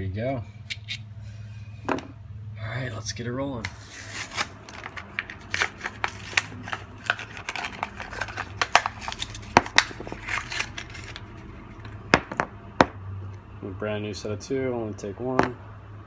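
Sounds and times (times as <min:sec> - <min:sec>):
small parts and packaging handled: 0:03.6 - 0:12.3.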